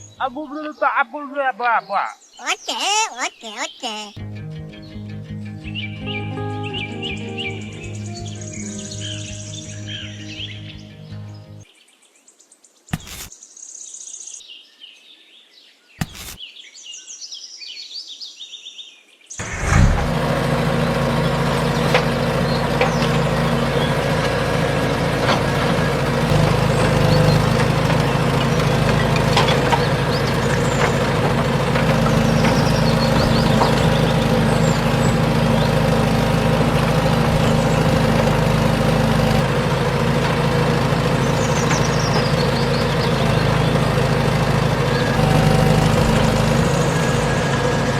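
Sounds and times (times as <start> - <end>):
birds chirping: 0.0 - 47.9
small motor running: 19.4 - 47.9.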